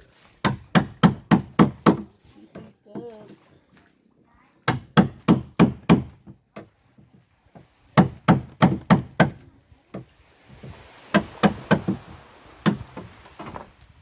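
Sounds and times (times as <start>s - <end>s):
hammer striking wood: 0.4s - 2.2s, 4.6s - 6.7s, 7.5s - 10.1s, 11.1s - 12.0s, 12.6s - 13.1s.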